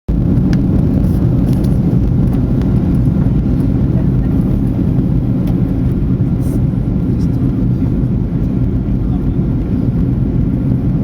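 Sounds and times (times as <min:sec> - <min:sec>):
aircraft engines rumbling: 0:00.1 - 0:11.0.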